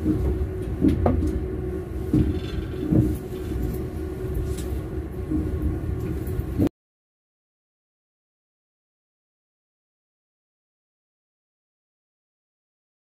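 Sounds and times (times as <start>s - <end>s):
train wheel knocks: 0.0s - 1.4s, 2.1s - 3.2s
train wheels rumbling on rails: 0.0s - 6.7s.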